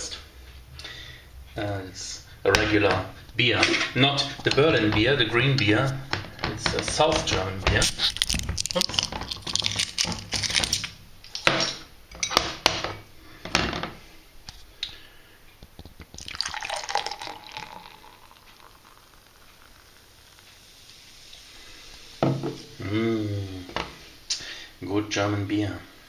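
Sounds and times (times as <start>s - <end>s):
beer pouring into glass: 16.1s - 22.7s.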